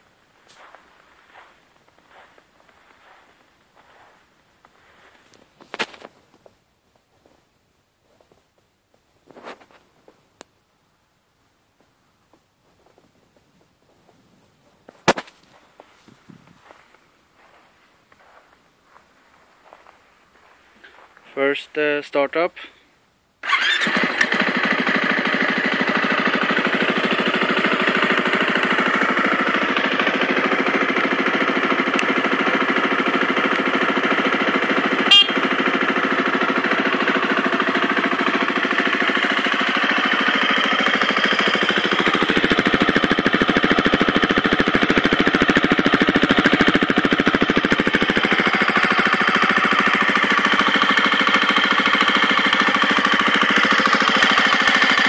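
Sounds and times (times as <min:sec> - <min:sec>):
motorcycle engine idling: 0:00.5 - 0:04.1, 0:16.6 - 0:21.2, 0:23.4 - 0:55.0.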